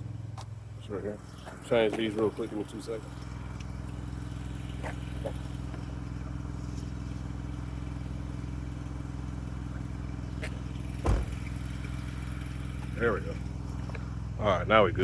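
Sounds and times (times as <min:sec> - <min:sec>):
engine running: 0:00.0 - 0:15.0
sharp knock: 0:11.0 - 0:11.4.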